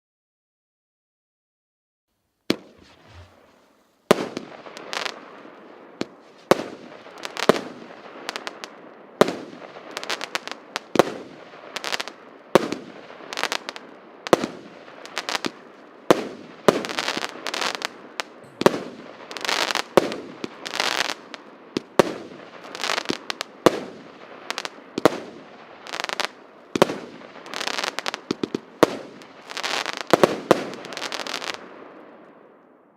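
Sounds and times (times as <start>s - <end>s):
firework rushing noise: 2.5s - 5.2s
firework sharp bangs: 2.5s - 32.0s.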